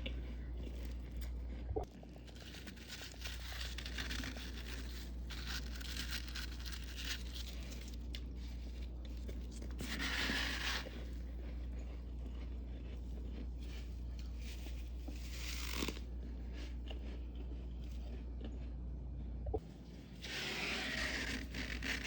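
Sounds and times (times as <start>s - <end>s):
frost scraped off freezer walls: 2.1s - 11.4s, 20.0s - 22.0s.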